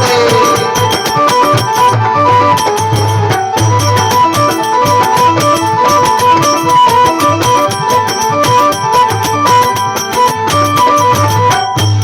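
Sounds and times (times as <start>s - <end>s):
brisk drum beat: 0.0s - 12.0s
folk melody line: 0.0s - 12.0s.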